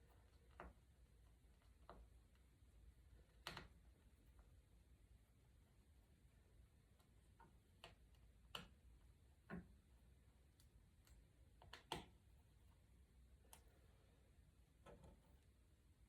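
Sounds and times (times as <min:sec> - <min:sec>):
faint sharp clicks and taps: 0:06.9 - 0:09.9, 0:10.5 - 0:12.3.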